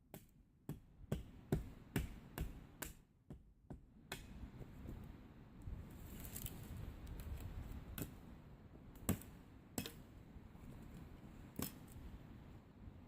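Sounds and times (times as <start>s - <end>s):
axe chopping wood: 0.1s - 5.0s, 9.0s - 10.0s.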